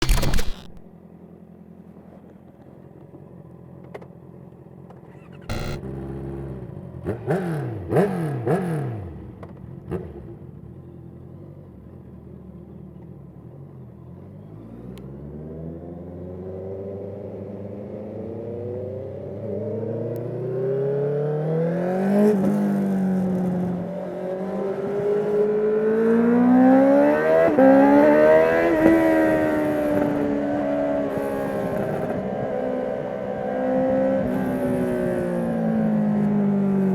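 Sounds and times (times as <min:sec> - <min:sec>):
motorcycle throttle blips: 0:05.2 - 0:05.8
motorcycle accelerating through gears: 0:05.3 - 0:12.0, 0:13.6 - 0:36.9.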